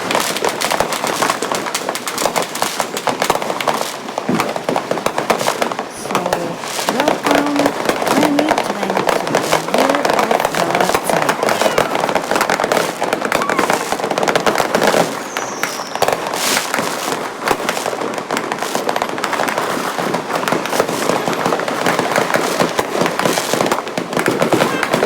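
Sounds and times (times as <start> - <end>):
firecrackers crackling: 0.0 - 25.0
firework whistle: 9.4 - 17.2, 20.7 - 23.7.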